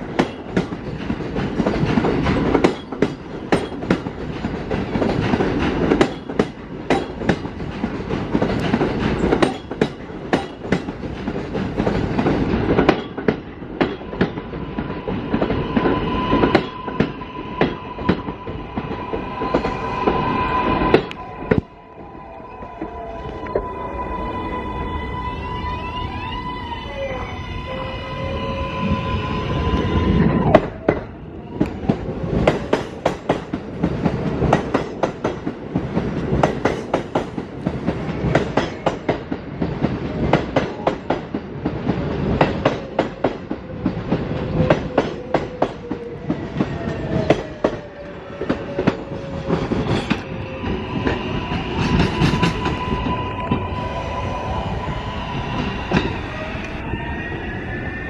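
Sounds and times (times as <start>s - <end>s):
train wheels clicking: 0.0s - 21.6s, 30.5s - 53.7s.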